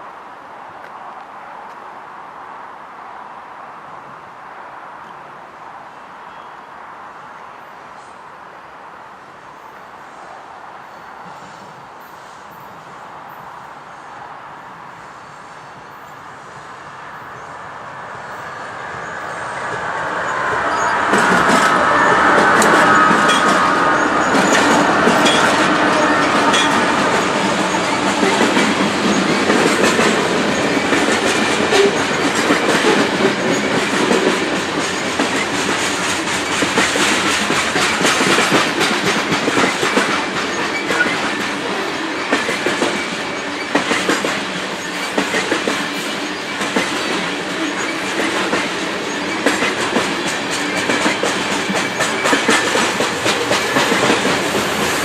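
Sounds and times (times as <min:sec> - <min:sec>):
train wheels clattering over rail joints: 0:19.5 - 0:55.0.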